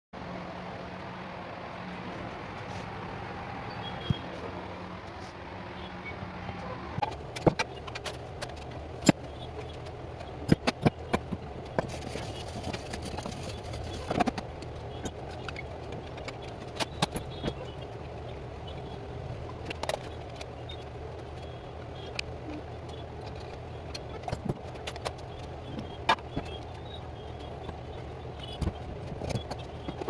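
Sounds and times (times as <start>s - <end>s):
low mechanical hum: 0.2s - 30.0s
sharp clicks and knocks: 7.0s - 17.8s, 19.4s - 30.0s.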